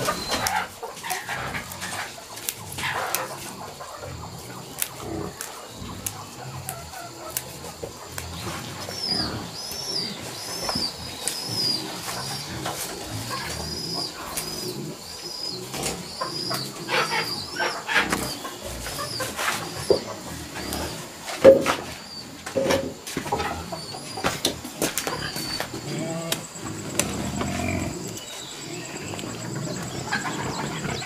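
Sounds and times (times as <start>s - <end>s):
knocks and rustles: 21.3s - 23.6s.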